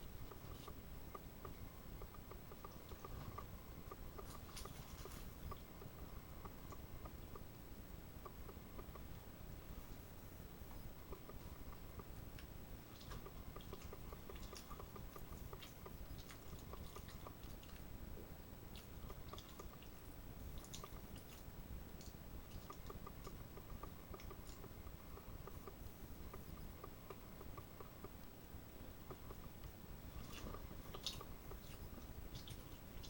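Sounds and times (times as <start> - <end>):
low hum: 0.0 - 33.0
person chewing food: 11.1 - 28.2, 29.0 - 33.0.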